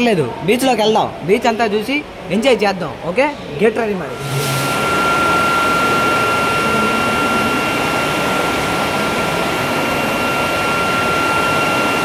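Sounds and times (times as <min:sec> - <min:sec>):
high-pitched whine: 0:03.3 - 0:12.0.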